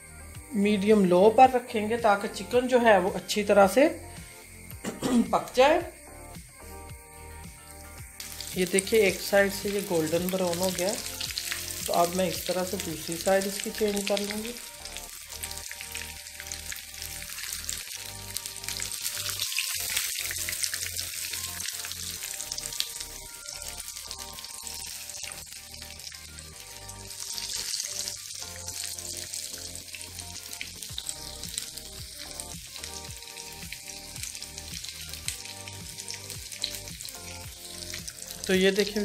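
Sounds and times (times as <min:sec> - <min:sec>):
chicken frying in hot oil: 0:08.1 - 0:39.0.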